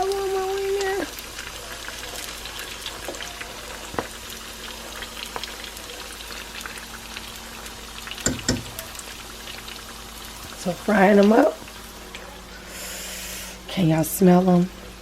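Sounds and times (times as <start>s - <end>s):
egg rolls frying in oil: 0.0s - 15.0s
knocks: 8.3s - 8.8s.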